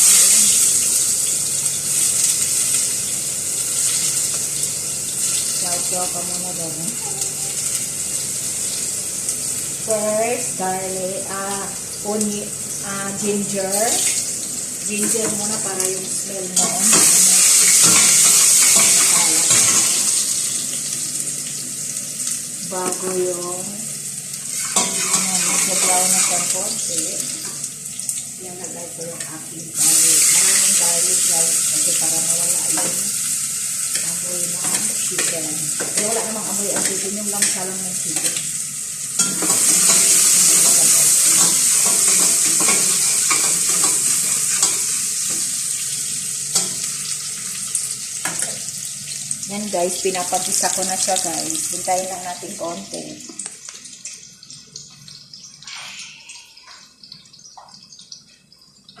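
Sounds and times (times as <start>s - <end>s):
ginger sizzling in oil: 0.0s - 59.0s.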